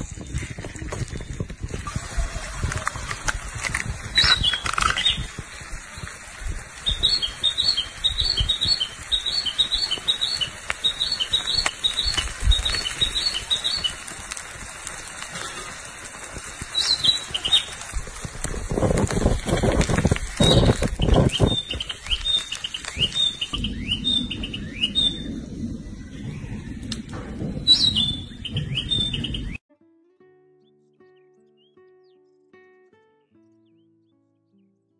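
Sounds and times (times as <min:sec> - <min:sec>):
bird chirping: 0:06.8 - 0:14.0, 0:20.4 - 0:26.8, 0:27.4 - 0:29.6, 0:30.6 - 0:34.9.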